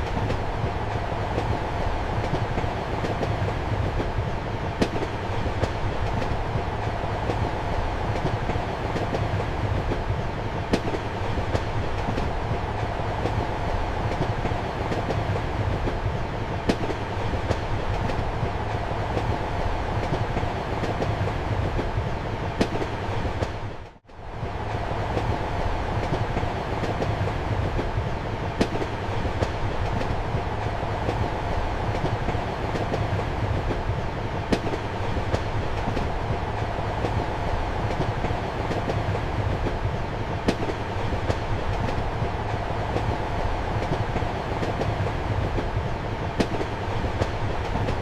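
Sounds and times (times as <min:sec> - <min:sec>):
train rumbling in motion: 0:00.0 - 0:48.0.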